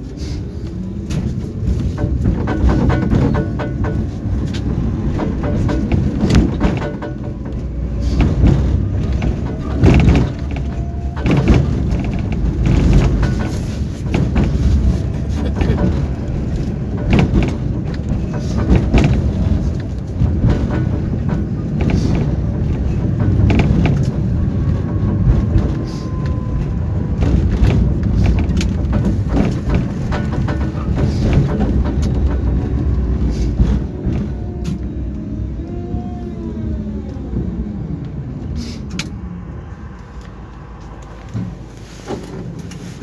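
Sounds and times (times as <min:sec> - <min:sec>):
tram wheels rumbling on track: 0:00.0 - 0:43.0
knocks and rattles: 0:01.0 - 0:35.2.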